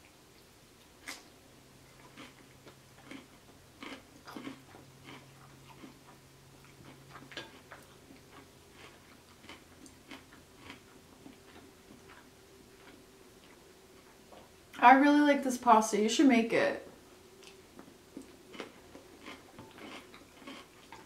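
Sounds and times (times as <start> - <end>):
chewing and wet mouth sounds: 0.0 - 14.8, 17.4 - 21.0
faint low hum: 0.0 - 21.0.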